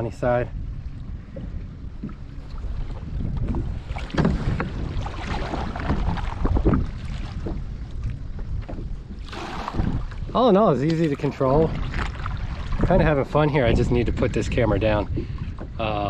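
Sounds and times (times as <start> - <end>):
waves splashing against hull: 0.0 - 16.0
wind buffeting microphone: 0.0 - 16.0
kayak paddle strokes: 1.3 - 10.2.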